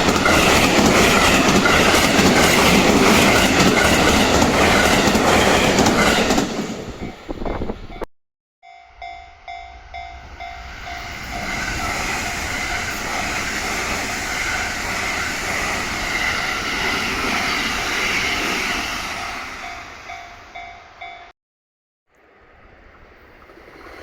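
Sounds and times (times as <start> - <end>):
train wheel and track noise: 0.0 - 8.1, 9.8 - 21.2.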